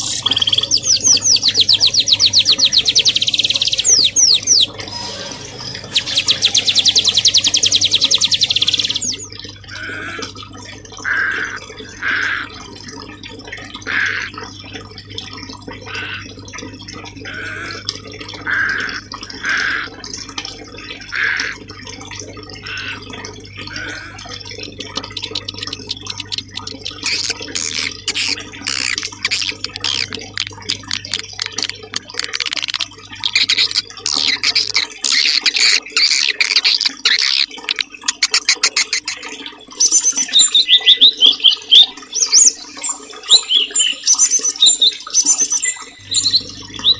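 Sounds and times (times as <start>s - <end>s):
songbirds chirping and singing: 0.0s - 10.3s, 23.6s - 46.9s
rapid trilling birdsong: 0.0s - 10.4s, 22.6s - 46.9s
running water: 0.0s - 46.9s.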